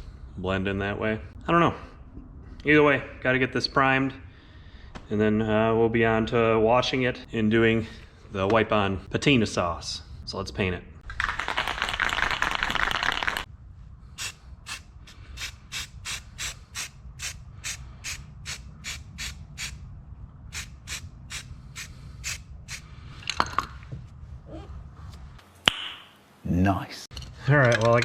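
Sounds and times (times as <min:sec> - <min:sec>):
aerosol can mixing ball rattling: 0:11.1 - 0:13.5
low steady rumble: 0:13.5 - 0:25.4.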